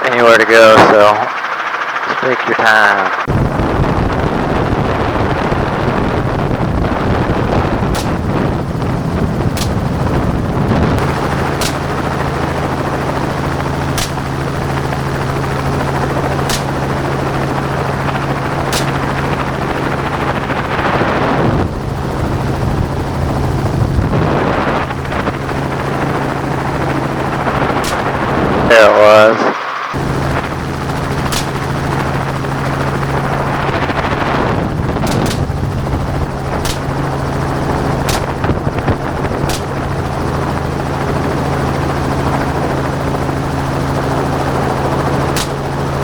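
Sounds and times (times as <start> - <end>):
helicopter rotor and engine: 0.0 - 46.0
low hum: 0.0 - 46.0
faint sharp cracks: 14.0 - 14.3, 16.5 - 16.9, 18.7 - 19.4, 31.3 - 32.0, 35.0 - 35.6, 36.6 - 37.1, 38.0 - 38.6, 39.4 - 40.1, 45.3 - 45.7.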